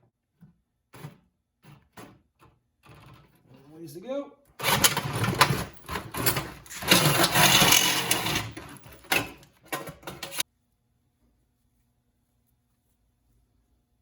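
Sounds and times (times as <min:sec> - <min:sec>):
power tool rattling whir: 0:04.6 - 0:10.4.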